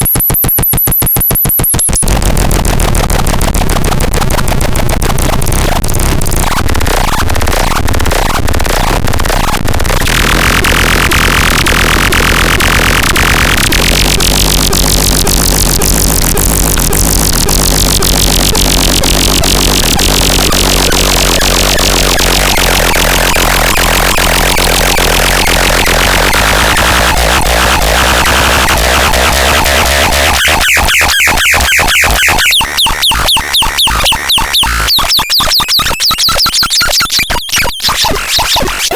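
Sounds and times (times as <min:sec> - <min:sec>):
fast even pulsing: 0:00.0 - 0:36.7
noisy synthesizer sound: 0:00.0 - 0:38.9
synthesizer sweep: 0:09.4 - 0:36.4.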